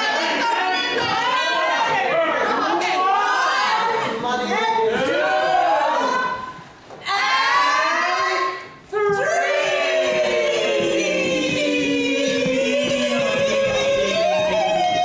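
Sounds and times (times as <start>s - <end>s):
group singing unaccompanied: 9.1s - 15.0s.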